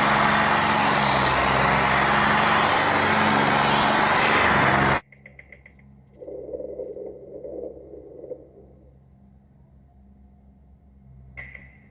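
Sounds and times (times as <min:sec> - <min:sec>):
tractor engine humming: 0:00.0 - 0:05.0.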